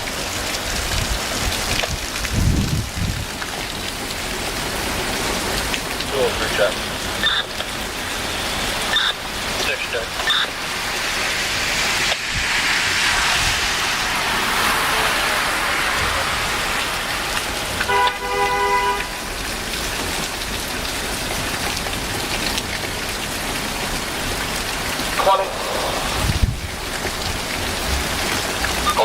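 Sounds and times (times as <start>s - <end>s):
heavy rain: 0.0s - 29.0s
vehicle horn: 16.0s - 19.3s.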